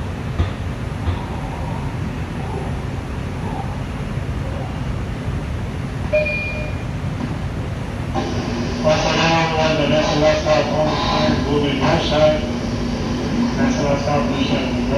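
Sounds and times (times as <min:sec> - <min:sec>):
subway wheels rumbling on track: 0:00.0 - 0:14.9
brief high tone: 0:06.1 - 0:06.9.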